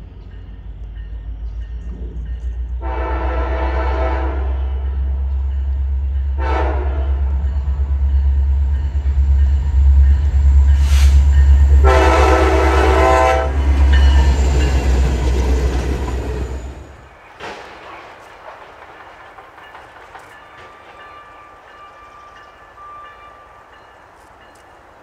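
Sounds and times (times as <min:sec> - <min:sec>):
train rumbling past: 0:00.0 - 0:25.0
locomotive air horn blasts: 0:02.8 - 0:04.8, 0:06.4 - 0:07.4, 0:10.8 - 0:13.9.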